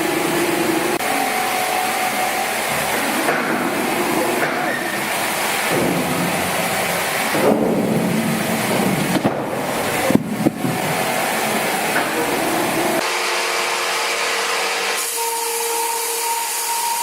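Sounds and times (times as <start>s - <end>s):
sawmill machinery running: 0.0s - 17.0s
sharp knocks: 2.9s - 13.0s.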